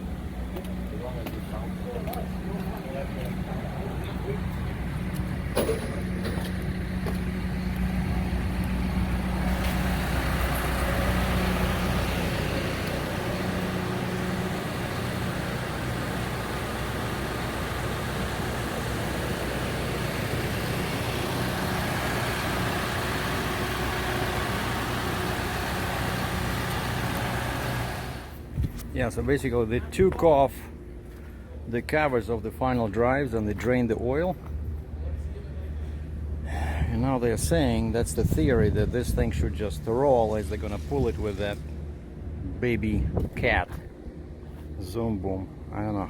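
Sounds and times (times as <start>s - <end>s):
heavy vehicle engine running: 0.0s - 28.8s.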